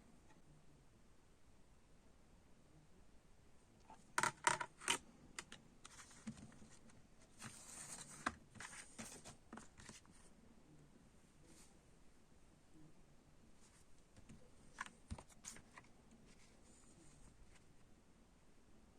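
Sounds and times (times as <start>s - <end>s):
plastic case clicks: 4.2s - 5.6s.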